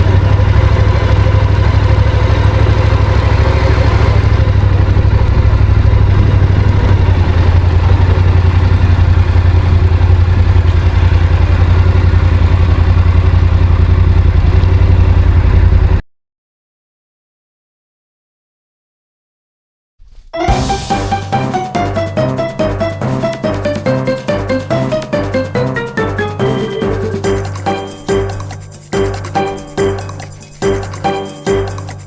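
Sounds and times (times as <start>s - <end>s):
motorcycle engine idling: 4.2s - 16.0s.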